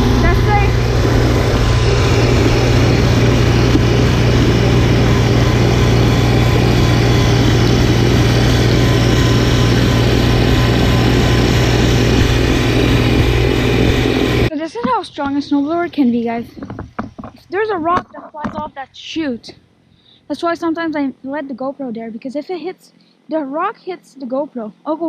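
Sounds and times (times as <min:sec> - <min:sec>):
snowblower engine running: 0:00.0 - 0:14.5.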